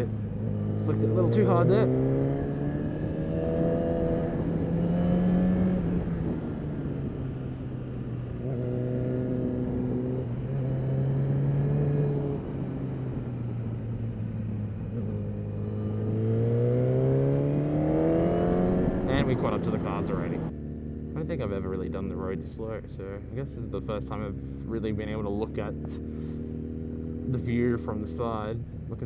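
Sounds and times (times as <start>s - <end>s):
motorcycle engine: 0.0s - 29.0s
wind rush on microphone: 2.9s - 8.7s.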